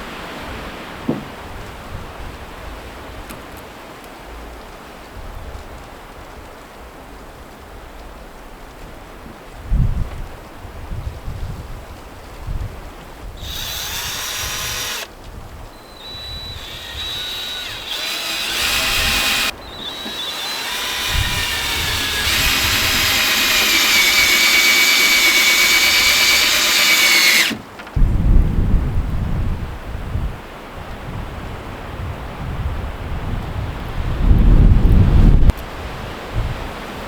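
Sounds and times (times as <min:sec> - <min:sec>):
power drill motor whine: 0:13.4 - 0:15.1, 0:15.7 - 0:27.6.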